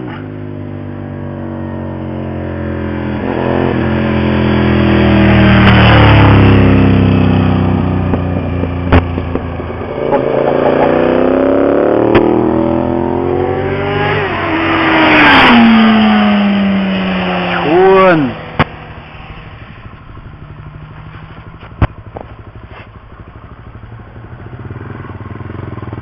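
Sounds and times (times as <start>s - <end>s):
car engines revving: 0.0s - 26.0s
cars passing at speed: 2.9s - 21.1s.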